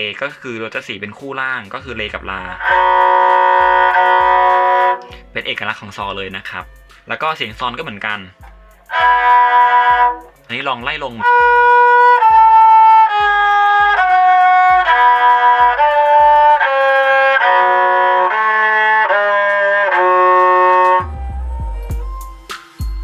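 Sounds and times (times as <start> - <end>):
bowed fiddle descending scale: 1.8 - 5.7, 8.8 - 22.5.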